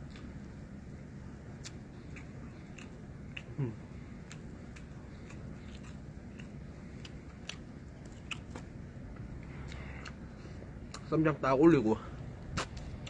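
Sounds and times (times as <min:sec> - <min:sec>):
chewing clicks: 0:01.6 - 0:03.6, 0:04.2 - 0:10.2.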